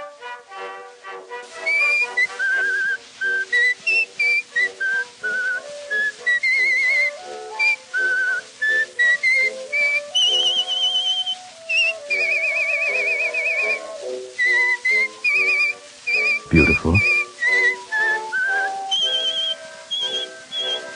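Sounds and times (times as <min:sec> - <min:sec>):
whistled melody with vibrato: 0:00.0 - 0:20.9
instrumental accompaniment: 0:06.8 - 0:20.9.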